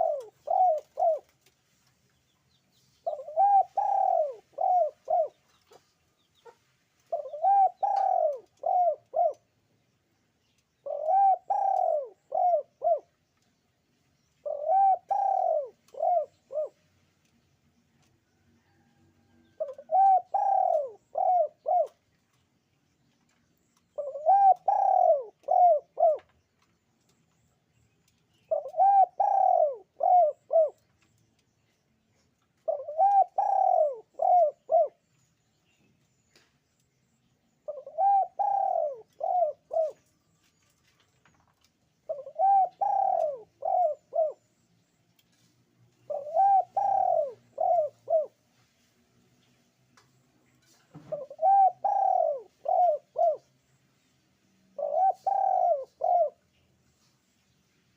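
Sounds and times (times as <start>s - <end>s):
dove cooing: 0.0s - 1.5s, 3.0s - 5.8s, 6.4s - 9.5s, 10.8s - 13.1s, 14.4s - 16.8s, 18.6s - 22.0s, 24.0s - 26.3s, 28.5s - 30.8s, 32.6s - 35.0s, 37.6s - 40.1s, 42.1s - 44.5s, 46.1s - 48.4s, 51.0s - 53.5s, 54.7s - 56.4s.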